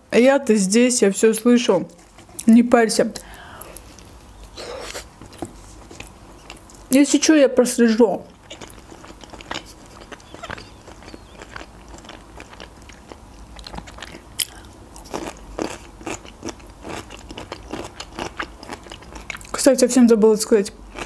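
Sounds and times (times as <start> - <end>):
crunchy cucumber chewing: 3.8 - 6.9, 8.3 - 19.6.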